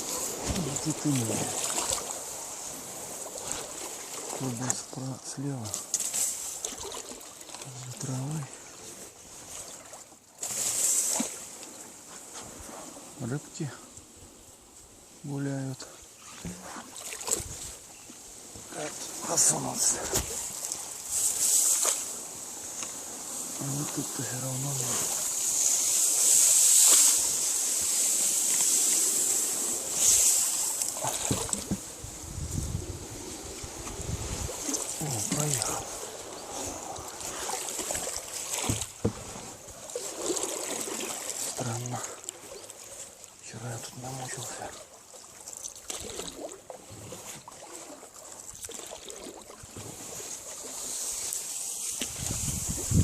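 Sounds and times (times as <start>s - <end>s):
boat swishing through water plants: 0.0s - 53.0s
steady high hiss: 17.8s - 38.5s.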